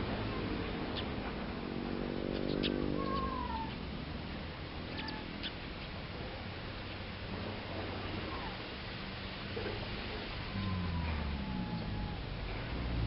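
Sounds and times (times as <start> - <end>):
high bird chirps: 2.3 - 3.8
wavering animal call: 2.4 - 3.8, 4.9 - 5.6, 10.3 - 12.6.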